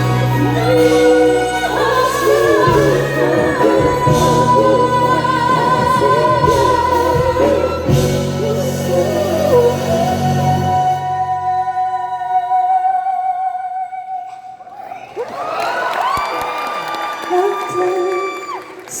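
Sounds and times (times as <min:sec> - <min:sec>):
band playing ballad: 0:00.0 - 0:12.6.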